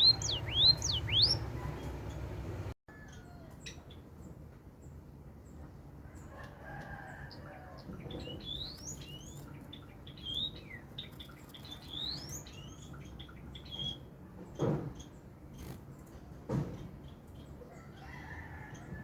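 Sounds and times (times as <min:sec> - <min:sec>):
bird singing chirps and twitters: 0:00.0 - 0:02.4, 0:07.8 - 0:16.1.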